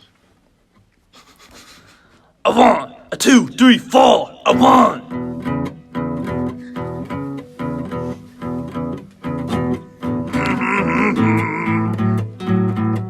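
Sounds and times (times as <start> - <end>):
blues guitar strumming chords: 4.5 - 13.0.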